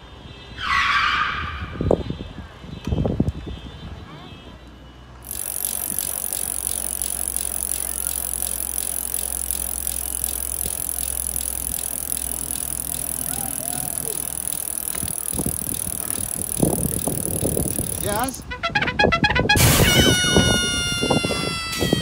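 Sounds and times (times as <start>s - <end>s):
wheels rolling over asphalt: 5.3s - 18.4s.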